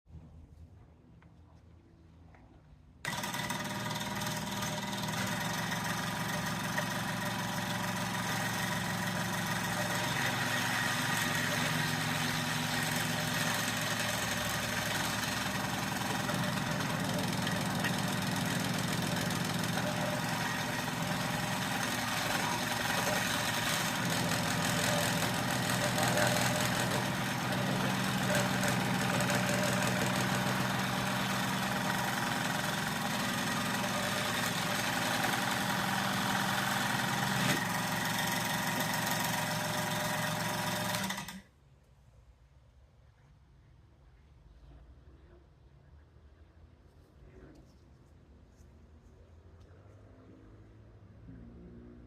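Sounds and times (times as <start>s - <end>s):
power saw cutting resin: 3.1s - 41.4s.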